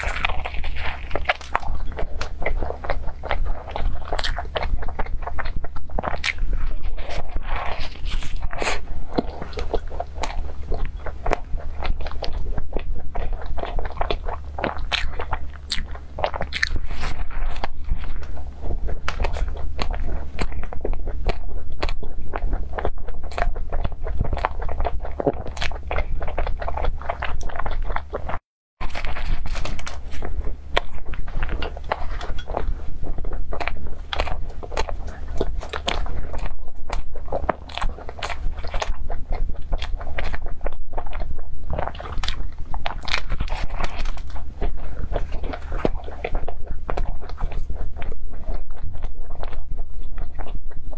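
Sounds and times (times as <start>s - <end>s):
person chewing crunchy pastry: 0.0s - 50.9s.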